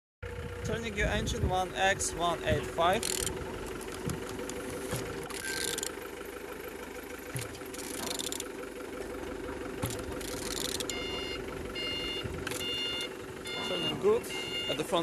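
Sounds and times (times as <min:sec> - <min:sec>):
steady machine hum: 0:00.3 - 0:15.0
faint clicks and knocks: 0:03.0 - 0:06.0, 0:09.8 - 0:11.0.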